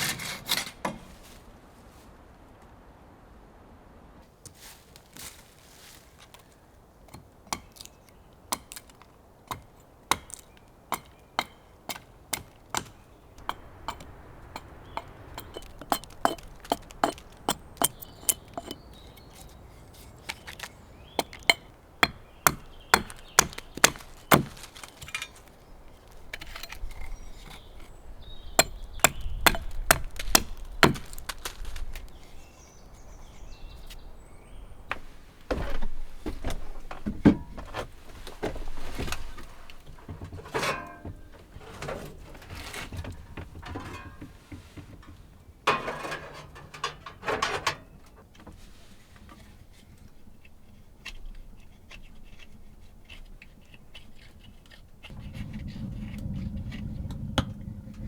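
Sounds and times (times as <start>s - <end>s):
wood being chopped: 7.1s - 19.6s, 20.2s - 27.7s, 28.4s - 32.2s
low rumble: 55.1s - 58.0s.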